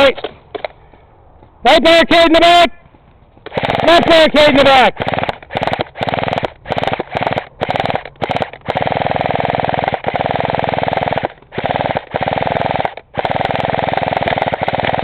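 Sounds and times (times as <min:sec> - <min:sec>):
airsoft rifle rapid bursts: 0:03.4 - 0:15.0.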